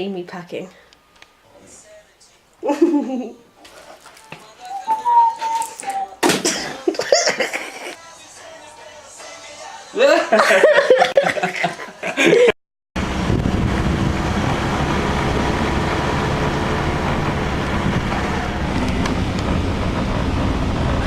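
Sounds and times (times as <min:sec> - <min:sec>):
person's voice: 0:10.0 - 0:10.4
vehicle low rumble: 0:13.0 - 0:21.0
wind noise on microphone: 0:13.0 - 0:21.0.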